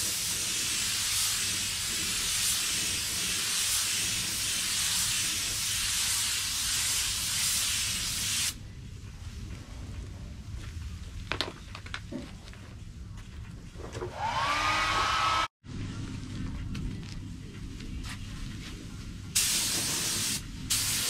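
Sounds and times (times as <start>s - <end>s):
paint spray gun hissing: 19.4s - 21.0s.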